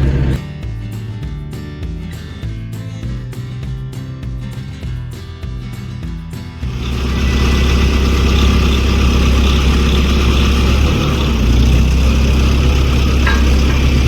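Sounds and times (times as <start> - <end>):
excavator diesel engine droning: 0.0 - 0.4, 6.6 - 14.0.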